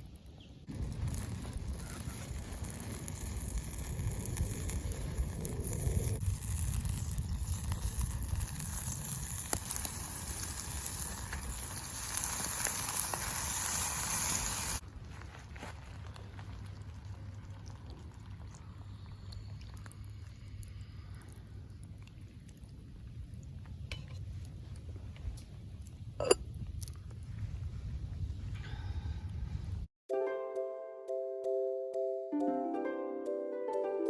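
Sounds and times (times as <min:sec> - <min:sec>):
fire popping: 0:00.0 - 0:28.5
wood fire crackling: 0:00.0 - 0:28.5
food sizzling: 0:00.7 - 0:14.8.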